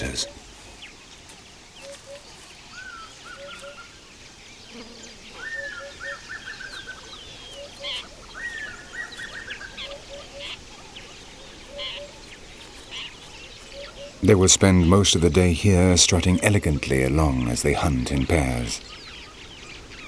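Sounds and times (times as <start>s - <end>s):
chattering bird call: 0.0s - 0.4s, 13.0s - 19.4s
birds calling: 0.0s - 20.0s.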